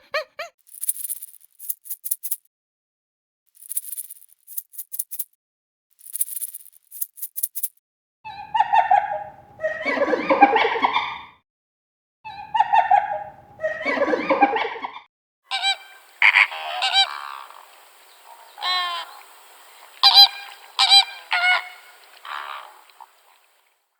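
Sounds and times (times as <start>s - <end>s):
short pitched bird calls: 15.5s - 23.7s
rough bird call: 15.5s - 23.8s.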